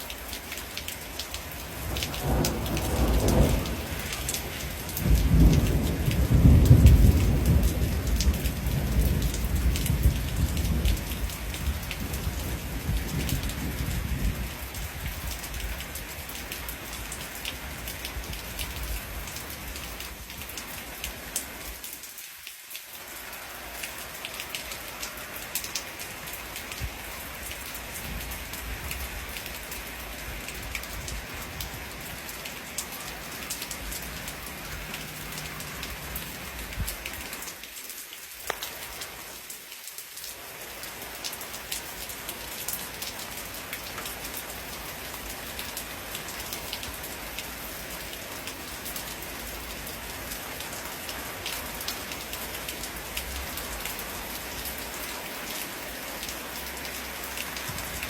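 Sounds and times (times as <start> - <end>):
steady rain pattering: 0.0 - 58.0
rolling thunder rumble: 1.9 - 15.4.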